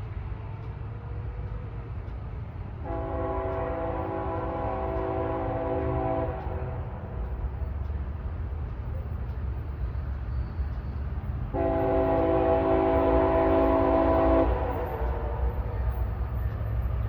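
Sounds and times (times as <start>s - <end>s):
low rumble of train engine: 0.0s - 17.0s
locomotive air horn blasts: 2.8s - 7.0s, 11.5s - 16.0s.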